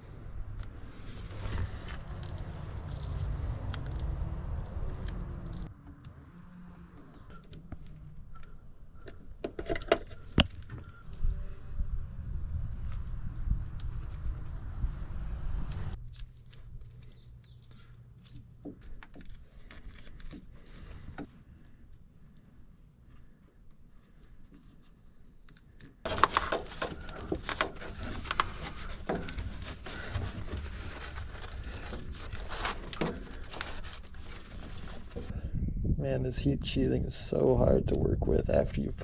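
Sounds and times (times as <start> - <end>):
crinkling and scraping: 0.0 - 6.1, 15.7 - 25.0, 25.6 - 35.4
faint clicks and rustles: 15.7 - 35.3
hands handling sheathing: 16.0 - 35.3.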